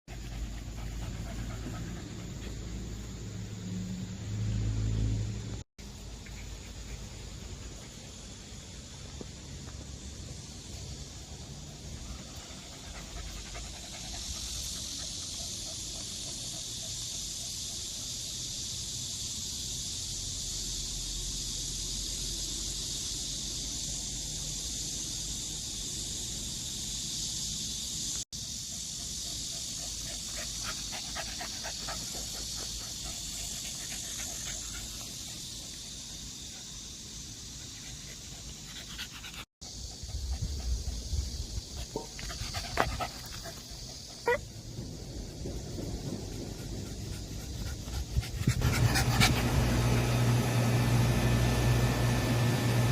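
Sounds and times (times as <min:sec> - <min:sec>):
dog panting: 0:00.1 - 0:03.0, 0:12.0 - 0:17.7, 0:28.6 - 0:36.0, 0:37.5 - 0:41.1, 0:41.7 - 0:44.4, 0:46.1 - 0:50.0.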